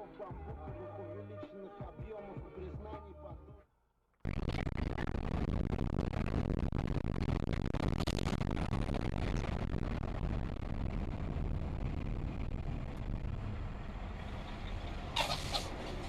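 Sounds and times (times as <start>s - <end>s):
car road and engine rumble: 9.4s - 16.0s.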